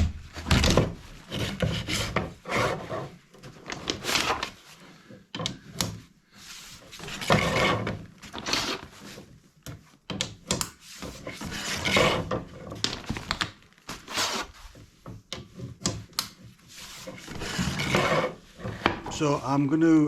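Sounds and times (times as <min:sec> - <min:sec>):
rubbing and scraping strokes: 0:01.0 - 0:05.1, 0:06.3 - 0:09.3, 0:10.8 - 0:12.5, 0:13.9 - 0:15.8, 0:16.4 - 0:19.7.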